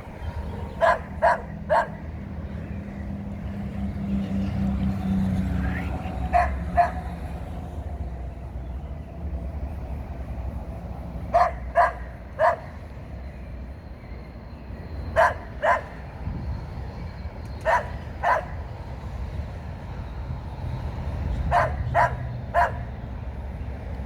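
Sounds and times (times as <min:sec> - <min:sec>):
dog barking: 0:00.7 - 0:02.1, 0:06.3 - 0:07.1, 0:11.3 - 0:12.8, 0:15.2 - 0:16.0, 0:17.6 - 0:18.6, 0:21.5 - 0:22.9.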